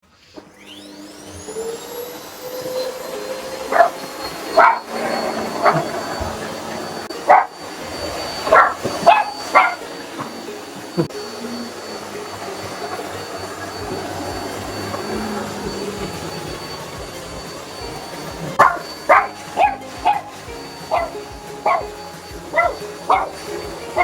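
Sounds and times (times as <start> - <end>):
vacuum cleaner motor whine: 0.0 - 24.0
small dog barking: 3.7 - 5.0, 5.6 - 6.0, 7.2 - 7.6, 8.4 - 9.9, 18.6 - 23.4.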